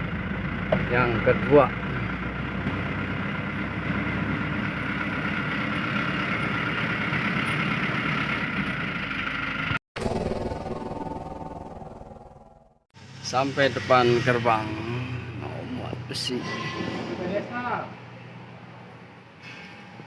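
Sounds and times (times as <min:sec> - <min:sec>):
truck engine running: 0:00.0 - 0:13.2.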